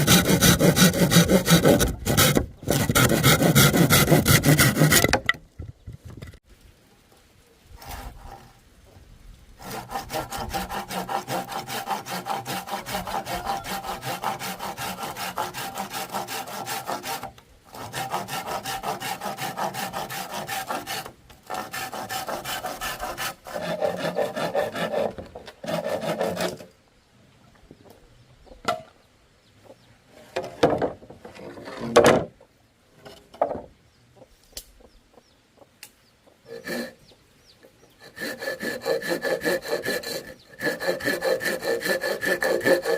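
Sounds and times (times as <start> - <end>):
hand saw cutting bamboo: 0.0 - 5.3, 7.8 - 8.5, 9.6 - 26.7, 36.5 - 37.0, 38.0 - 42.9
wooden knocks and taps: 5.0 - 6.4.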